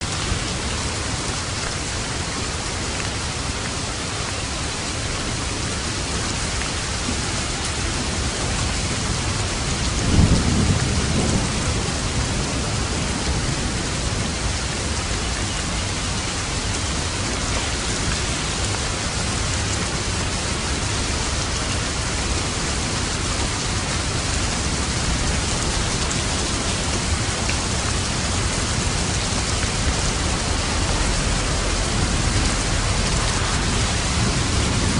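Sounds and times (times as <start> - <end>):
heavy rain drumming on a roof: 0.0 - 34.9
thunderclap: 9.7 - 13.7, 28.8 - 34.9.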